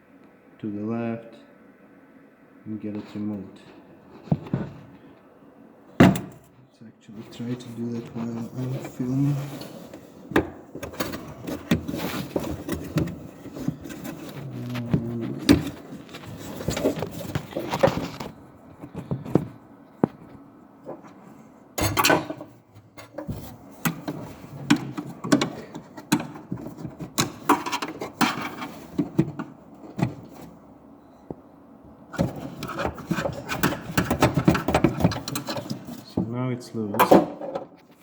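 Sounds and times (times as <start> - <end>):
plastic scraping on metal: 7.3 - 19.5, 22.9 - 30.6, 32.1 - 36.2.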